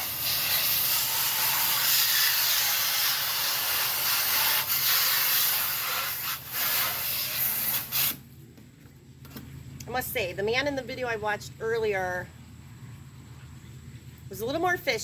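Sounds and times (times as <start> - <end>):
sprayer hissing: 0.0 - 8.2.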